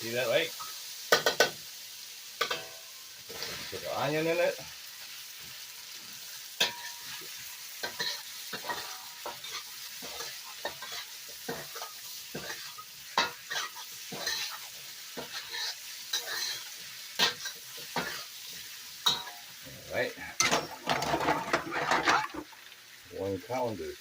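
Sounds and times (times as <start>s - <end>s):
onion sizzling in a wok: 0.0s - 24.0s
spatula scraping a wok: 2.4s - 4.7s, 5.3s - 19.6s, 20.4s - 22.6s.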